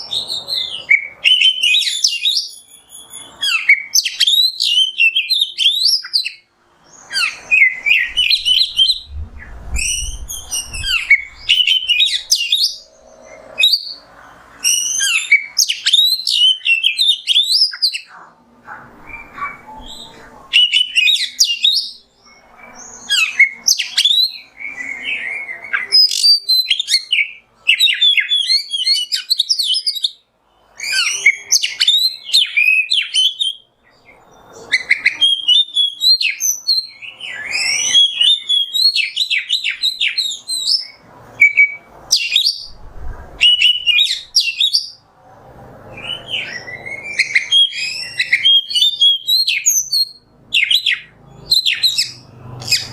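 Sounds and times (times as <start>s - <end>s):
magpie-robin singing: 0.0s - 42.8s, 43.4s - 45.0s, 45.9s - 52.9s.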